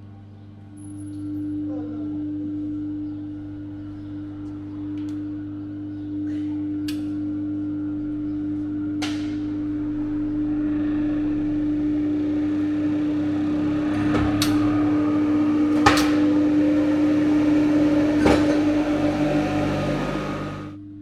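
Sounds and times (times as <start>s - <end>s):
whine rising in pitch: 9.5s - 21.0s
electric motor humming: 9.7s - 20.8s.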